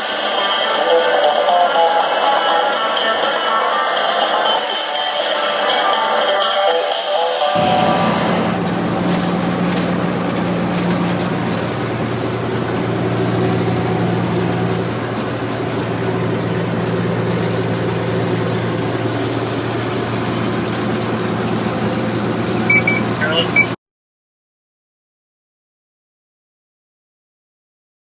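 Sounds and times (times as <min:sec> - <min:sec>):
truck engine running: 0:06.8 - 0:23.8.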